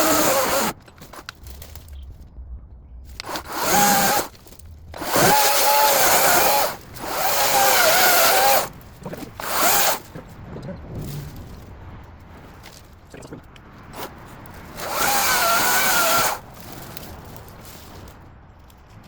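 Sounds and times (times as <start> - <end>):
electric chainsaw motor whining: 0.0 - 0.8, 3.2 - 4.3, 5.0 - 8.7, 9.4 - 10.1, 14.8 - 16.4.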